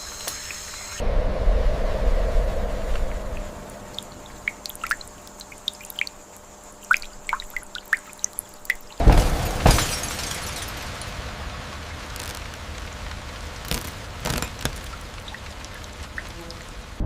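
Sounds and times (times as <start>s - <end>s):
loud rush of water: 1.8s - 6.1s, 9.0s - 17.0s
water dripping: 2.8s - 9.1s, 9.8s - 17.0s
water splash: 2.9s - 17.0s.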